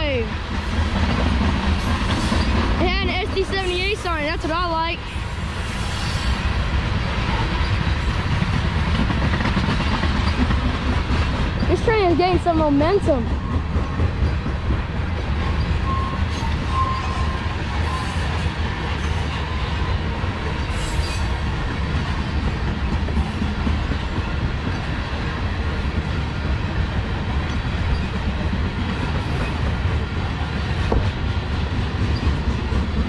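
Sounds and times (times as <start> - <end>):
train wheels rumbling on rails: 0.0 - 33.0
faint wheel squeal: 15.5 - 18.4.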